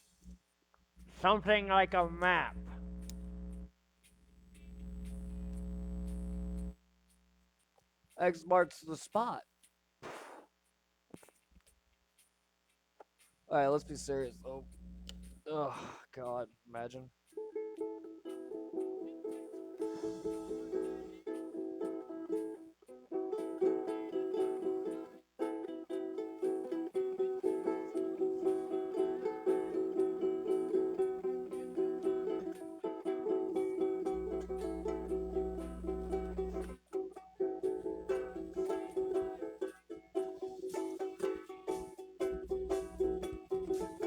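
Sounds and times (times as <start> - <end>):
acoustic string instrument strummed: 17.3 - 44.0.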